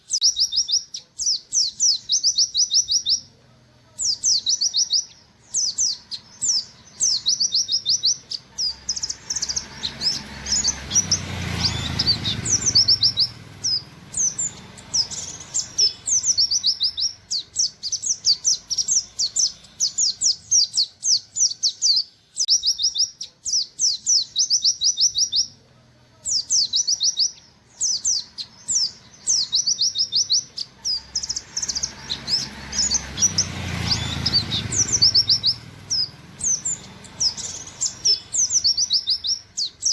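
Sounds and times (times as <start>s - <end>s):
bird singing high notes: 31.2s - 39.9s.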